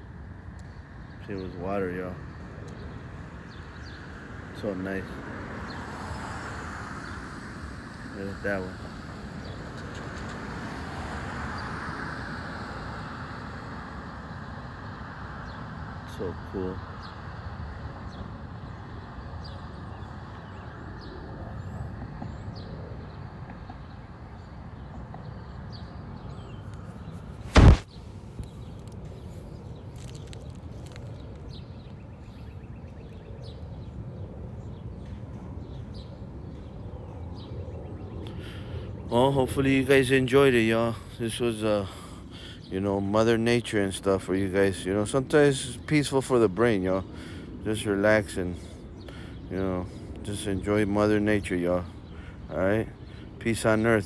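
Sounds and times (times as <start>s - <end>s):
road traffic hiss and rumble: 0.0s - 54.0s
small birds chirping: 0.5s - 11.8s, 15.4s - 54.0s
loud thump: 27.5s - 27.9s.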